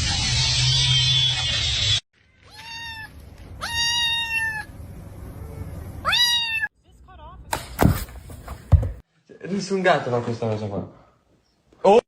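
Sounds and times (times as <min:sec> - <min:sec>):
cat meowing: 0:02.4 - 0:04.7, 0:05.4 - 0:06.7
cat trill: 0:02.4 - 0:04.7, 0:06.0 - 0:06.7.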